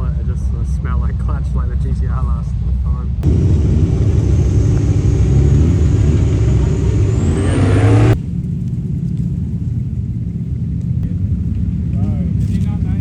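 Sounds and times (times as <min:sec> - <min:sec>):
car engine accelerating hard: 0:03.2 - 0:08.3.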